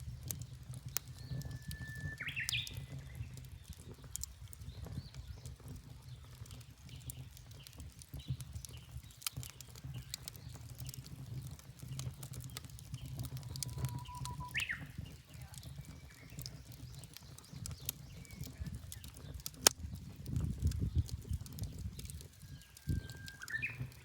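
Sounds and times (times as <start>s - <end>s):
wood fire crackling and popping: 0.0s - 24.0s
bird singing whistled notes: 1.1s - 3.4s, 12.6s - 19.2s, 22.4s - 24.0s
faint bird calls: 13.1s - 15.0s, 22.7s - 24.0s.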